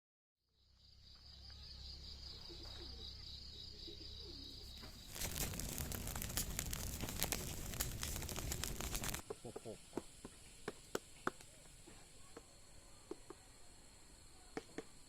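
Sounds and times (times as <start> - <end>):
high pulsing insect trill: 0.6 - 9.2
crackling rustling clicks: 4.8 - 9.2.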